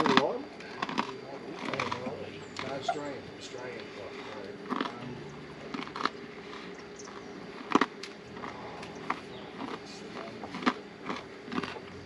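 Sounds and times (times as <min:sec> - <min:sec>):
person chewing a cracker: 0:00.0 - 0:02.0, 0:04.2 - 0:05.0, 0:05.6 - 0:12.0.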